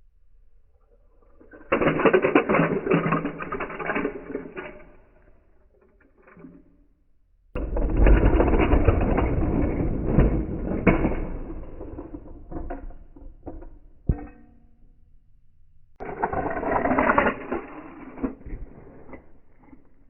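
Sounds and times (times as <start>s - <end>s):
slowed toy cars crashing: 1.4s - 6.6s, 7.6s - 14.2s, 16.0s - 20.0s.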